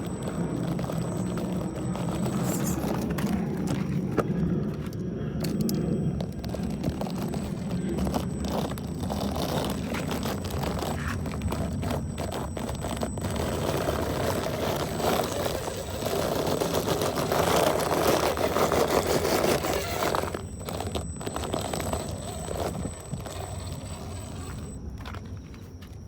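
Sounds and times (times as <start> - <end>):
scraping and rattling: 0.0 - 24.8
toy car electric motor whirring: 0.0 - 25.2.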